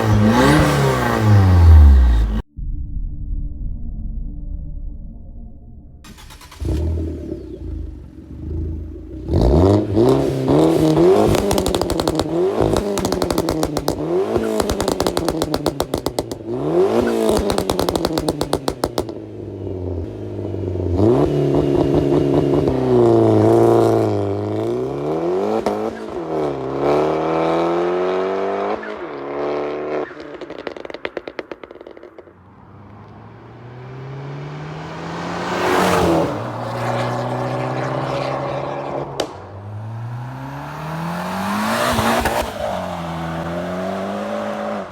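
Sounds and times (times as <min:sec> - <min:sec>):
car engine revving: 0:00.0 - 0:02.5, 0:06.1 - 0:44.9
exhaust crackling pops: 0:10.5 - 0:19.2, 0:30.1 - 0:33.2, 0:39.0 - 0:39.8.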